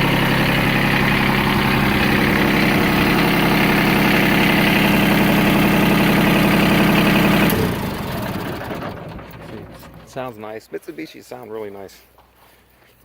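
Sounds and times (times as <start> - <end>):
tractor diesel engine running: 0.0 - 10.9.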